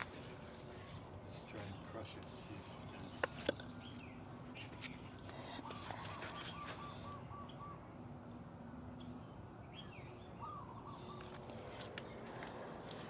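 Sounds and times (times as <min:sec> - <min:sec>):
steady background noise: 0:00.0 - 0:13.0
faint bird calls: 0:03.8 - 0:08.0, 0:09.8 - 0:12.7.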